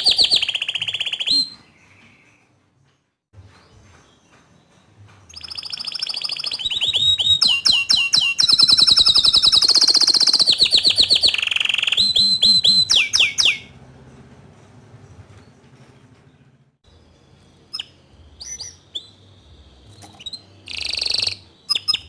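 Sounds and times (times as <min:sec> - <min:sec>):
canary singing: 0:00.0 - 0:02.6, 0:03.5 - 0:14.3, 0:16.9 - 0:22.0.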